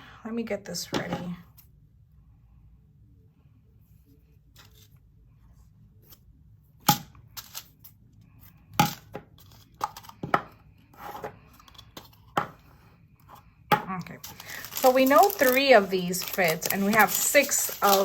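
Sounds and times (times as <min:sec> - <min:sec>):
plastic bags rustling: 0:13.9 - 0:18.0.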